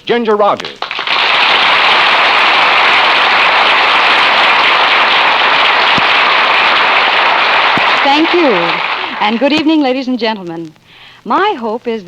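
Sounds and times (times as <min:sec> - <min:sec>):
audience applauding: 0:00.8 - 0:09.8.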